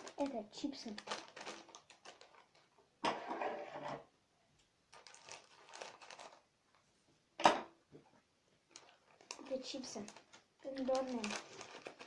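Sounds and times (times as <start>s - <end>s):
plastic chip packet crinkling: 0.0s - 2.8s, 4.9s - 6.8s, 8.7s - 12.0s.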